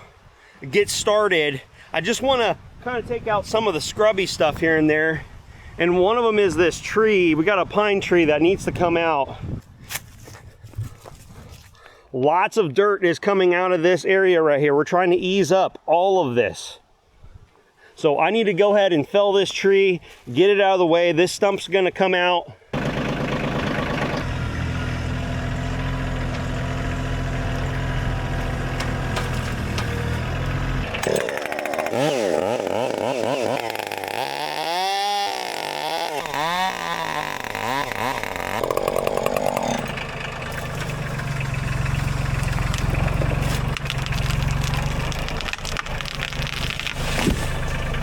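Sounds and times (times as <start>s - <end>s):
low engine idling: 22.8s - 32.0s, 37.4s - 48.0s
chainsaw cutting a tree: 22.8s - 48.0s.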